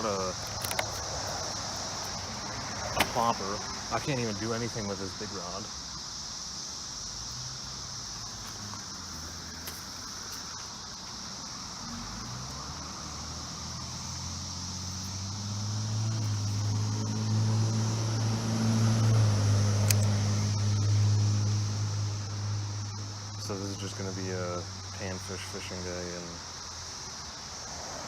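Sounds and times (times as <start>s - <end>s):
cicadas chorus: 0.0s - 28.0s
low engine hum: 11.6s - 24.9s.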